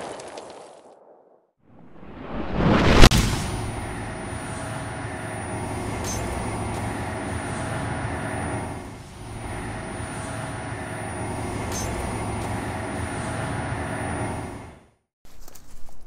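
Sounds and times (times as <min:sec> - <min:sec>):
low rumbling drone: 0:01.7 - 0:15.0
high-pitched ringing tone: 0:03.7 - 0:14.6.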